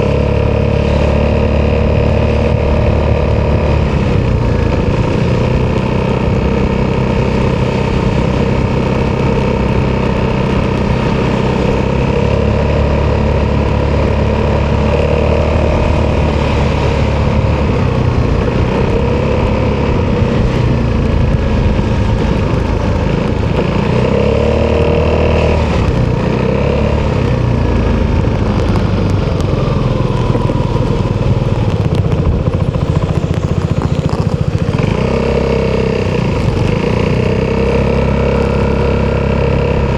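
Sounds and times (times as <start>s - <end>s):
motorcycle engine revving while riding: 0.0s - 39.9s.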